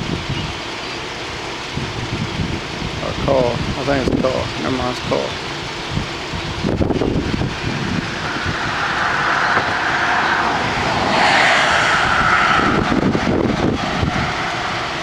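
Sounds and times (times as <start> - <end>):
car passing: 6.1 - 15.0.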